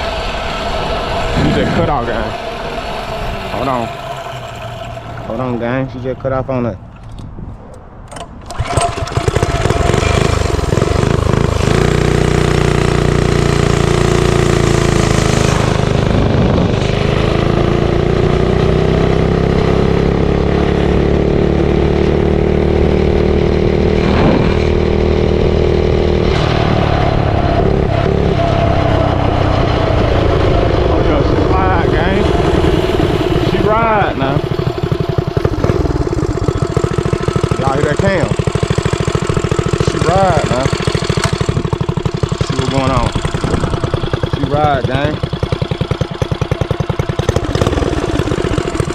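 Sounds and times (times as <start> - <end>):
small engine running: 0.0 - 6.4, 8.4 - 48.9
starter clicks: 6.9 - 9.9.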